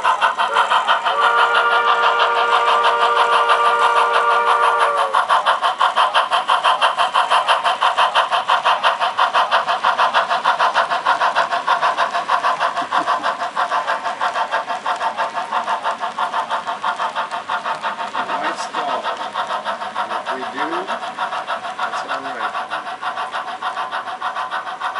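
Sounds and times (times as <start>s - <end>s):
model steam locomotive chuffing: 0.0s - 24.9s.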